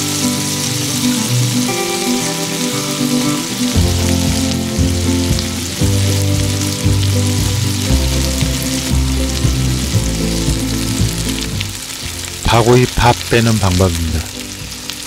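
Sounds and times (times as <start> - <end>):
background music with bass line: 0.0 - 15.0
skewers sizzling on charcoal grill: 0.0 - 15.0.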